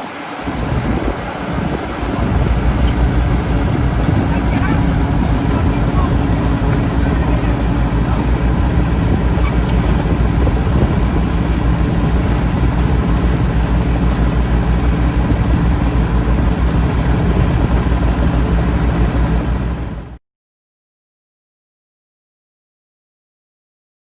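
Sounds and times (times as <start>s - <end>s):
combine harvester running: 0.0s - 20.2s.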